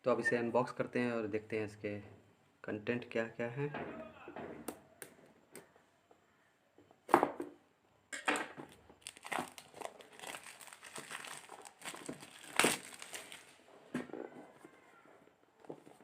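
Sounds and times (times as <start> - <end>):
packaging being torn: 8.7 - 13.6
packaging crinkling: 8.7 - 13.7.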